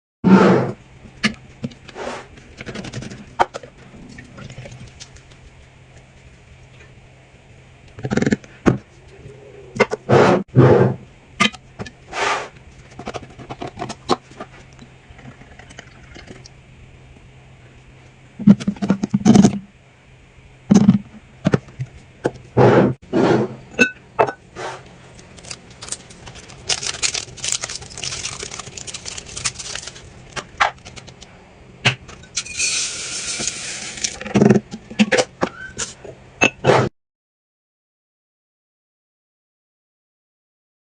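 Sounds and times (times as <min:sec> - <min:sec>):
packaging rustling: 0:25.2 - 0:31.2.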